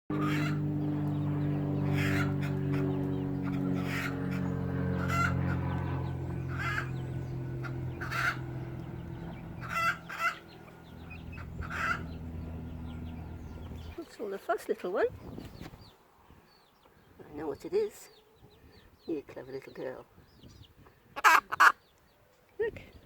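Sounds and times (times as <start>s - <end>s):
hen squawking: 0.1s - 0.6s, 1.8s - 5.6s, 6.5s - 7.0s, 7.6s - 8.6s, 9.6s - 12.2s, 21.2s - 21.8s
steady low hum: 0.1s - 14.1s.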